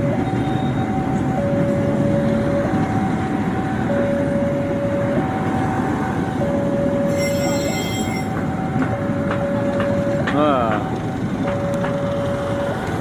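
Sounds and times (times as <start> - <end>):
two-tone warning siren: 0.0 - 13.0
train rumbling past: 1.0 - 13.0
train wheels squealing: 7.1 - 8.3.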